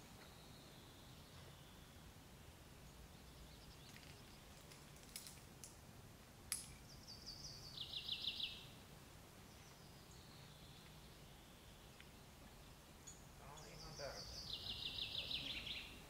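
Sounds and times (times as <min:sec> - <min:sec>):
songbird trilling phrase: 0:07.1 - 0:08.6, 0:13.1 - 0:16.0.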